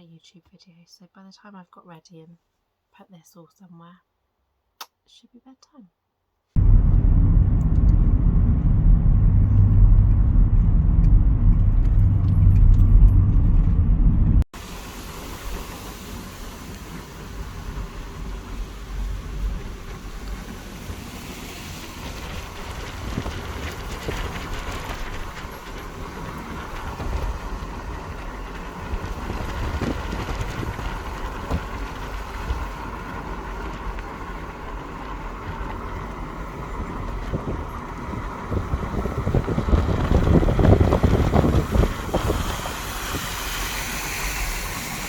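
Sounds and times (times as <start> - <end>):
wind noise on microphone: 6.6 - 14.5, 17.5 - 45.0
road and engine rumble: 6.6 - 45.0.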